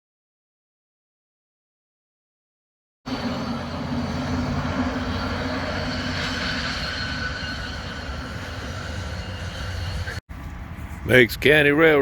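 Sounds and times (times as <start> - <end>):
high wheel squeal: 3.1 - 10.2
train wheels rumbling on rails: 3.1 - 10.2.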